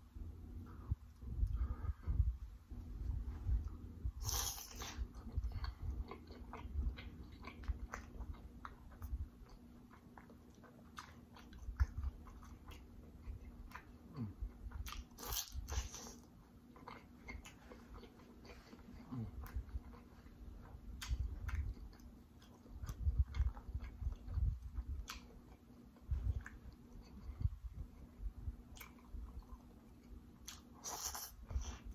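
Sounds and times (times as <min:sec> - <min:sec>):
mouth clicks and smacks: 0:03.6 - 0:16.2, 0:16.8 - 0:28.1
wet chewing: 0:03.6 - 0:31.9.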